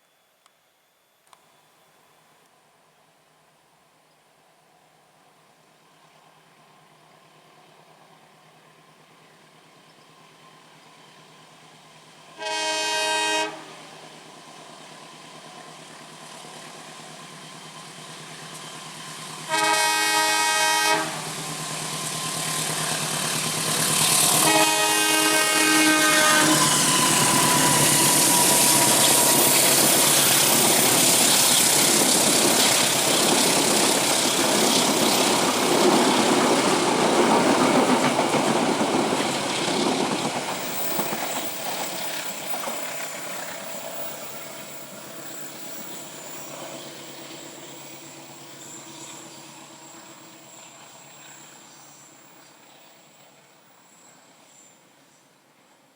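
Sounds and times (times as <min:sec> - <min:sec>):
train horn blasts: 0:12.3 - 0:14.0, 0:19.5 - 0:21.4, 0:24.3 - 0:28.7
train wheels clacking on rails: 0:15.3 - 0:51.8.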